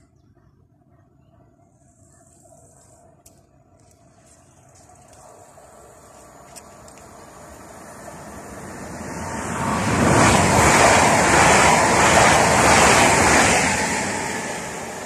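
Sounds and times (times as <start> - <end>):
train wheels rushing on rails: 5.1 - 15.0.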